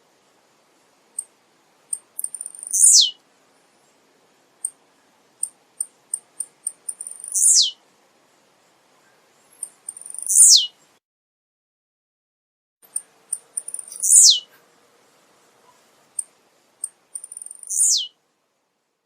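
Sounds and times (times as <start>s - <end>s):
bird singing high ticks: 1.9s - 3.2s, 4.6s - 4.8s, 5.4s - 7.8s, 9.0s - 10.8s, 12.9s - 14.6s, 16.2s - 18.1s.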